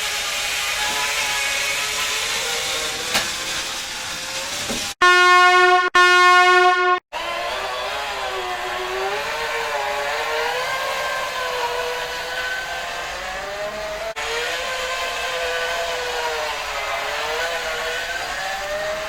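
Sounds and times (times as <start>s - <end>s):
electric motor whining: 7.2s - 19.0s.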